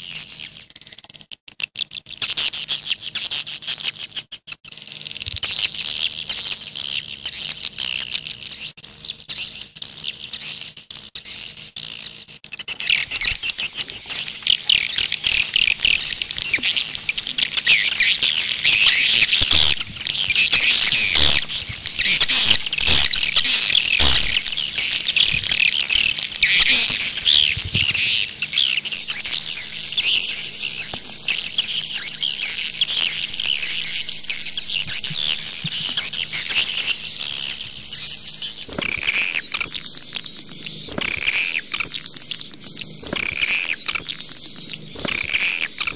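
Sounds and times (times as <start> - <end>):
swiftlets chattering: 13.0 - 39.6.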